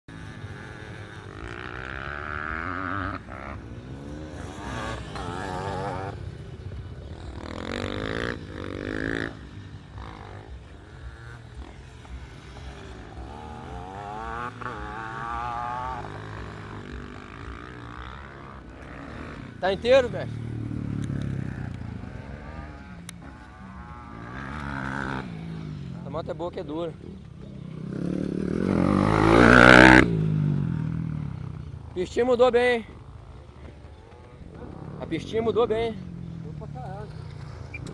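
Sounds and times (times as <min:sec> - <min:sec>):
dirt bike engines revving: 0:00.0 - 0:37.9.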